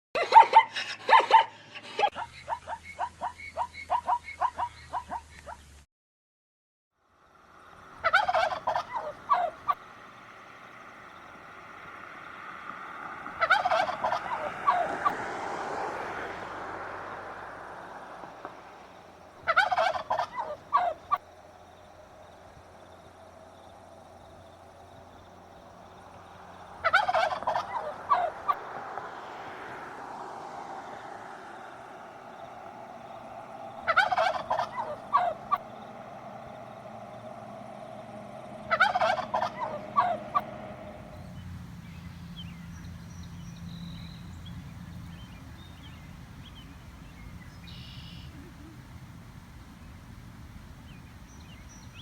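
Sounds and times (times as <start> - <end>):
turkey gobbling: 8.0 - 9.9, 13.3 - 15.2, 19.4 - 21.2, 26.8 - 28.7, 32.9 - 36.1, 38.6 - 41.0.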